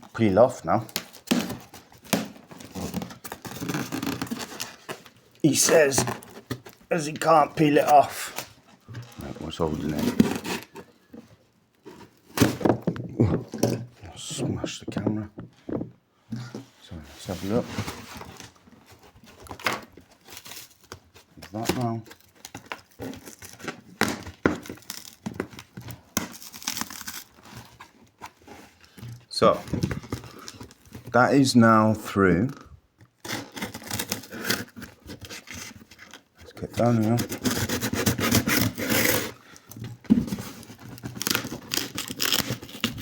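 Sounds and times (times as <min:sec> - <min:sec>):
cardboard tearing and crinkling: 0:00.8 - 0:11.0, 0:17.4 - 0:31.1, 0:33.2 - 0:43.0
cardboard box being cut and torn: 0:01.0 - 0:05.0, 0:09.6 - 0:10.8, 0:26.2 - 0:27.8, 0:33.2 - 0:36.1, 0:36.8 - 0:39.4, 0:40.1 - 0:43.0
packaging crinkling: 0:40.4 - 0:43.0.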